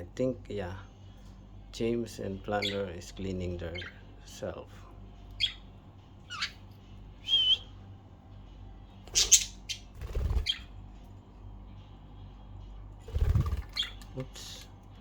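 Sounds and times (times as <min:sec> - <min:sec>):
budgerigars chirping and whistling: 0:02.4 - 0:04.4, 0:05.4 - 0:07.7, 0:09.1 - 0:10.8, 0:13.3 - 0:14.6.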